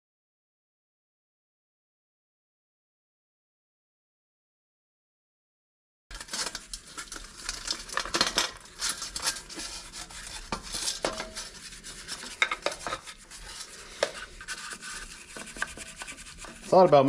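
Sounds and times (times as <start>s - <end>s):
metal parts clinking and scraping: 6.1s - 9.6s.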